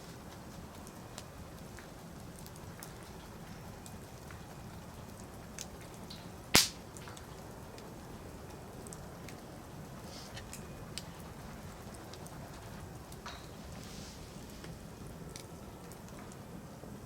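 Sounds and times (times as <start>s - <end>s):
low fire hiss: 0.0s - 17.0s
wood fire crackling: 0.0s - 17.0s
sharp loud pop: 6.6s - 6.8s.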